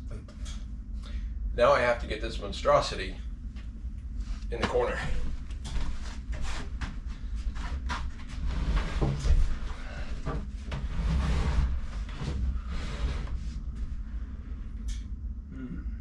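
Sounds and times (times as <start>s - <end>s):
cabinet scraping: 7.6s - 13.6s.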